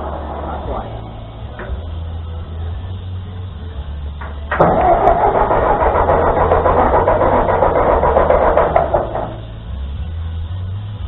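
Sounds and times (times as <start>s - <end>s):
tractor engine cranking by starter: 4.2s - 9.7s.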